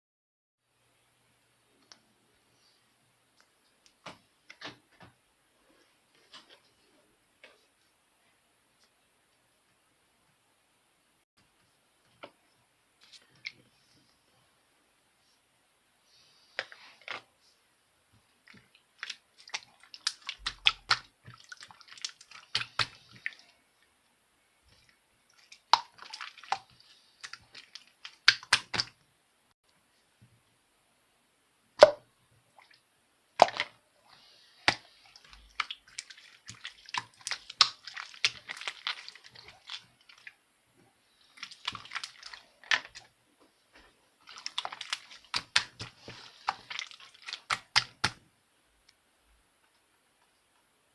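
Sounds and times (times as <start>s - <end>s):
slime squished by hand: 18.5s - 23.5s, 25.4s - 29.0s, 34.6s - 40.3s, 41.2s - 43.1s, 44.2s - 48.2s.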